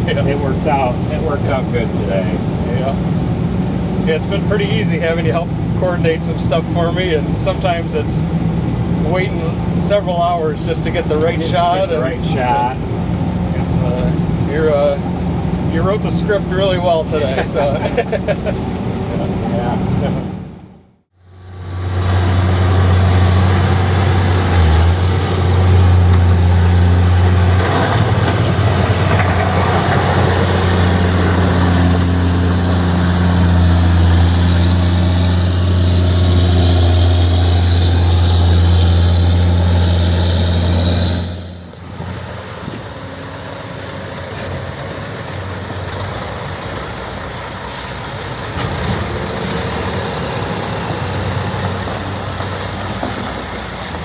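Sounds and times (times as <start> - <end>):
diesel machinery engine hum: 0.0 - 54.0.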